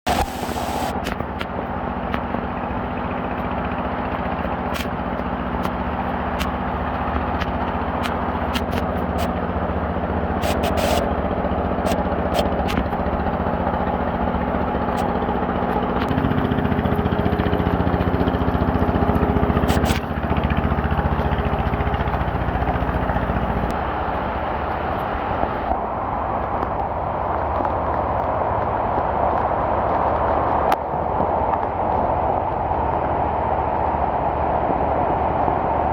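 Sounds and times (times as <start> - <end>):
heavy rain: 0.1 - 1.2
motor humming: 0.1 - 25.8.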